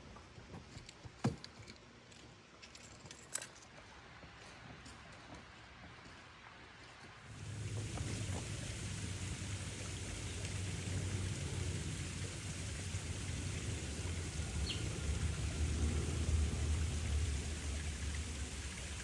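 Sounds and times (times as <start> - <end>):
rain-like hiss: 7.2 - 19.0.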